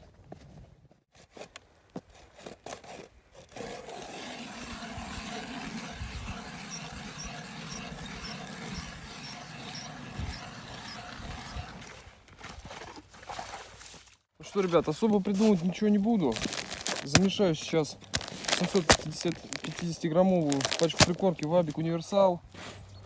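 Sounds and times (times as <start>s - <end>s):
ice auger boring through ice: 3.6s - 12.1s, 16.2s - 17.4s, 18.0s - 21.5s.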